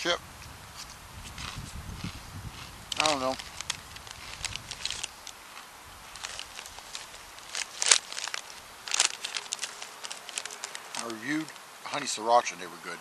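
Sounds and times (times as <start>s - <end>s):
person crunching potato chips: 2.6s - 11.6s.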